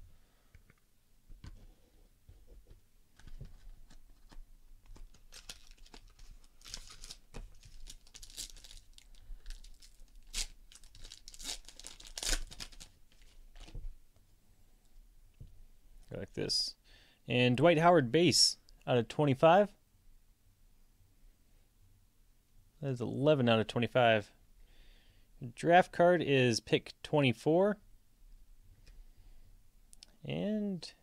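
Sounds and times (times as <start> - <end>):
wrapper tearing and crinkling: 4.9 - 13.7.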